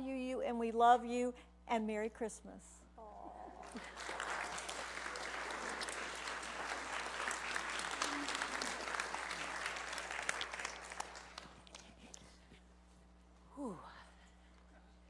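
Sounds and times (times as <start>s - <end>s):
congregation applauding: 3.6s - 12.3s.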